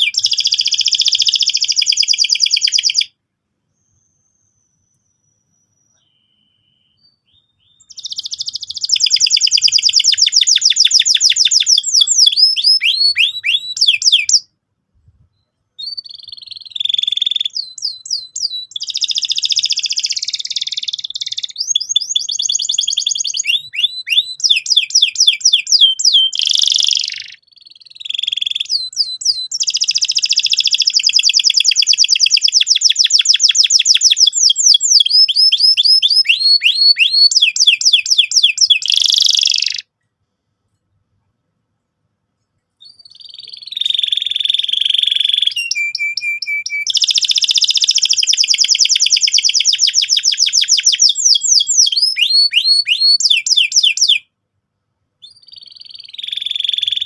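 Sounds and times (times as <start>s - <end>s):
canary singing rolling trills: 0.0s - 14.5s, 15.4s - 39.9s, 42.8s - 54.2s, 55.2s - 57.0s.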